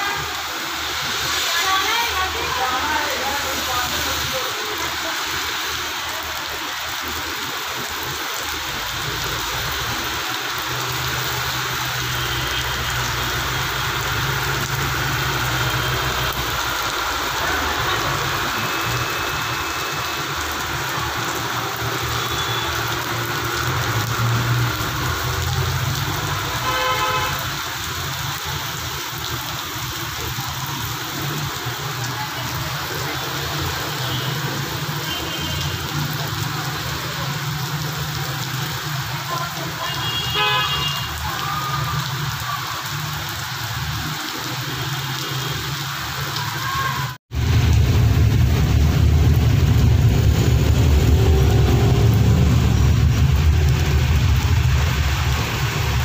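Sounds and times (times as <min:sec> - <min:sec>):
heavy rain pouring: 0:00.0 - 0:56.0
traffic driving through water: 0:00.0 - 0:56.0
vehicle horn: 0:22.2 - 0:22.7, 0:26.5 - 0:27.5, 0:39.8 - 0:41.2.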